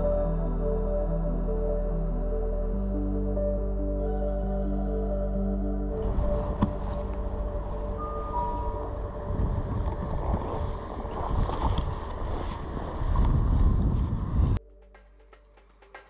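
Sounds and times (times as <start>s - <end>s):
wind buffeting microphone: 6.0s - 14.6s.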